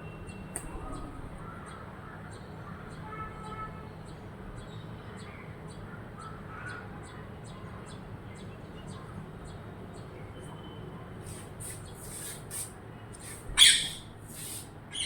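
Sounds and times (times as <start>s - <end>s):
faint bird calls: 13.2s - 15.0s.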